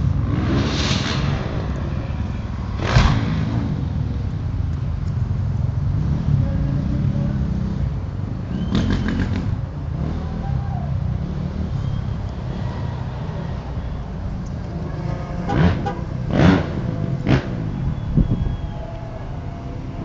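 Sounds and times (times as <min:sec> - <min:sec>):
dirt bike engines: 0:00.0 - 0:20.0.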